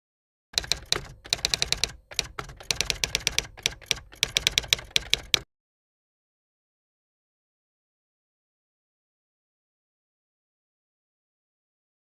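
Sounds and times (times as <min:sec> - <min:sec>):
rapid key clicks: 0:00.6 - 0:05.4.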